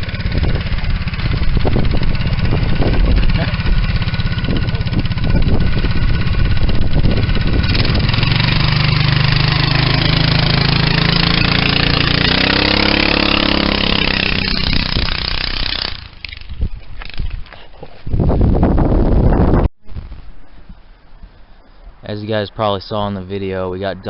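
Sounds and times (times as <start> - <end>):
go-kart engine running: 0.0 - 16.6.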